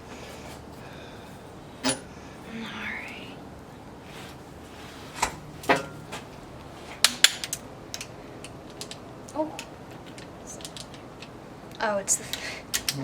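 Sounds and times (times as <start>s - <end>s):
metal tools clinking: 1.8s - 2.1s.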